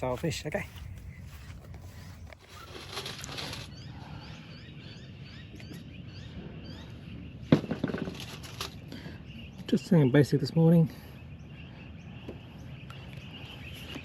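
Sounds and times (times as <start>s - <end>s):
small bird chirping: 0.0s - 14.0s
rustle: 0.1s - 3.8s.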